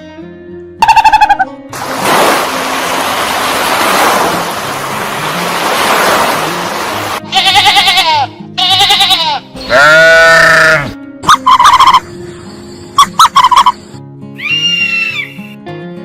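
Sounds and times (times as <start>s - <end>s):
loud noisy rushing: 1.8s - 7.2s
animal bleating: 7.2s - 11.0s.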